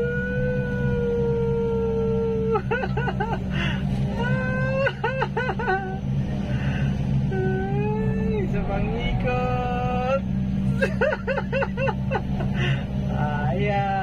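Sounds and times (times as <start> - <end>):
backhoe engine running: 0.0 - 14.0.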